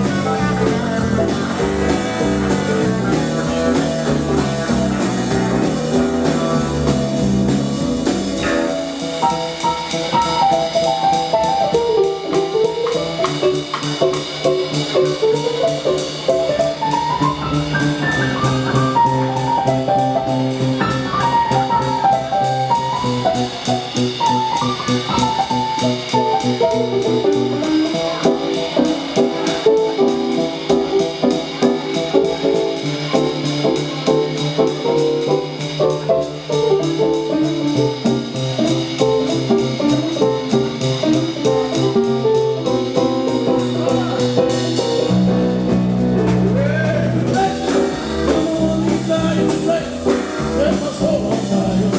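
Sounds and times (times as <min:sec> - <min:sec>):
fast melodic lead line: 0:00.0 - 0:11.4
steady drum beat: 0:00.0 - 0:51.9
walking bass: 0:00.0 - 0:51.9.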